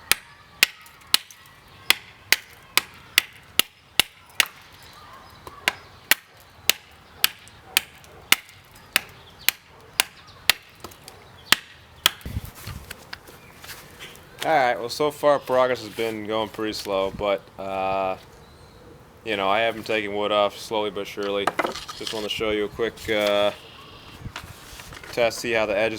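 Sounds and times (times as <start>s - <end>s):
knife chopping into wood: 5.5s - 12.3s.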